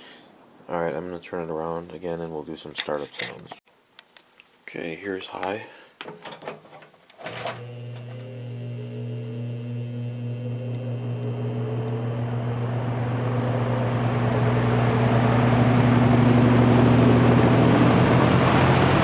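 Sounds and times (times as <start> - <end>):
box fan motor and rushing air: 7.6 - 19.0.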